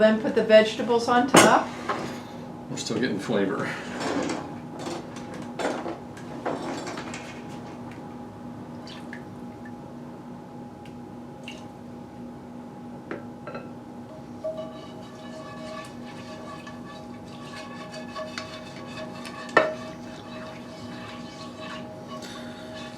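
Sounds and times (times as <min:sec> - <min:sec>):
steady low hum: 0:00.0 - 0:22.9
utensil scraping in a frying pan: 0:14.3 - 0:22.9.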